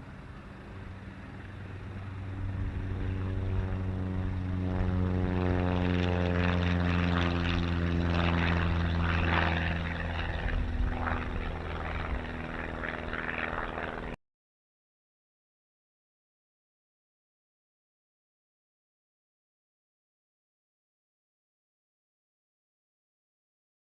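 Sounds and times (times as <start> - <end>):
light aircraft engine and propeller: 0.0 - 14.2.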